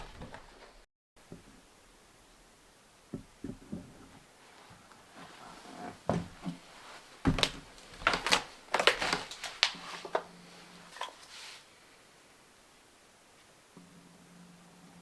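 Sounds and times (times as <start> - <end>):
hard objects knocking and clattering: 3.1 - 4.2.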